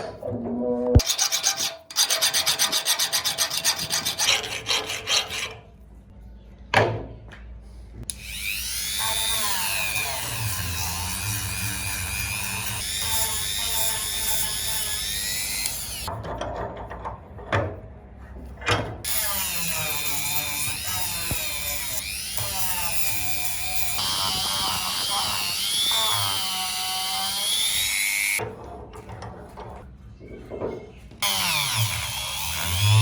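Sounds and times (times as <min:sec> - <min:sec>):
electric power tool whining: 0:08.1 - 0:16.1, 0:19.1 - 0:28.4, 0:31.2 - 0:33.0.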